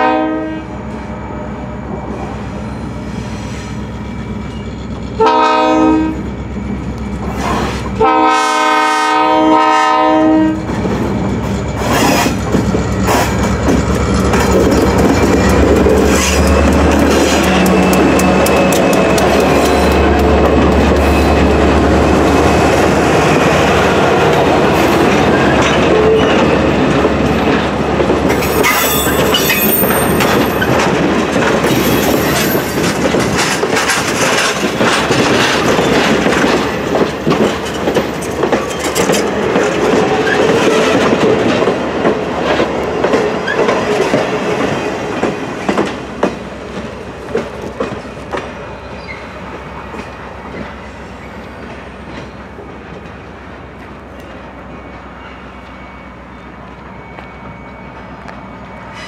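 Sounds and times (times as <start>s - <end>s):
diesel locomotive drone: 0.0s - 59.0s
high flange squeal: 0.8s - 5.2s, 10.6s - 23.9s, 28.3s - 30.9s, 48.8s - 49.5s
train wheels clicking over rail joints: 10.6s - 55.0s.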